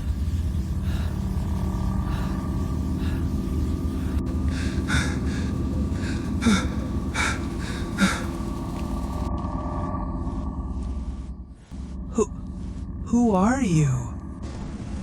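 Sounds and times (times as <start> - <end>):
heavy breathing: 0.0 - 9.3
steady low rumble: 0.0 - 15.0.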